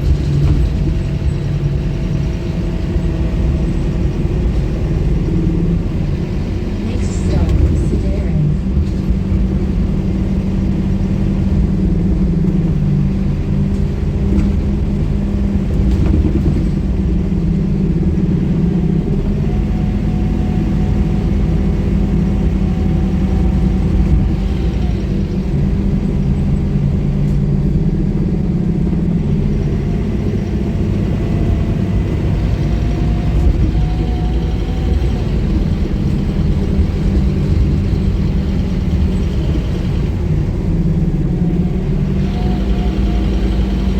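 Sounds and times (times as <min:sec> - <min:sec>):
bus diesel engine droning: 0:00.0 - 0:43.9
faint whine: 0:05.1 - 0:09.4.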